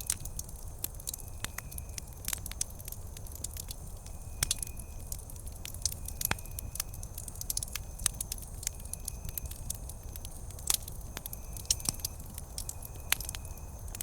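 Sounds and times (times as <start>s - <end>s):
campfire crackling: 0.0s - 14.0s
wood snapping and popping: 0.0s - 14.0s.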